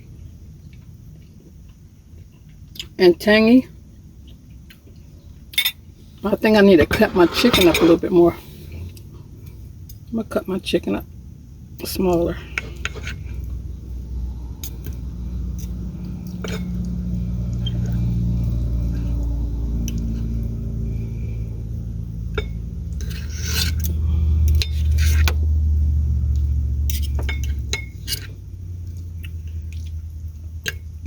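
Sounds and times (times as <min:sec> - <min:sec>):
knife and fork scraping a plate: 0:06.8 - 0:08.2, 0:12.6 - 0:13.3, 0:23.0 - 0:23.9, 0:24.6 - 0:25.4, 0:26.9 - 0:28.3
low rumble: 0:12.4 - 0:31.0.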